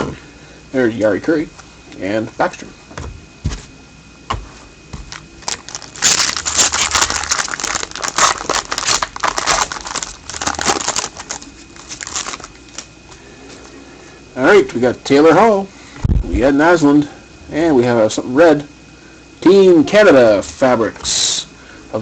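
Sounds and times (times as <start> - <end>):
foil wrapper crinkling: 5.0 - 12.9.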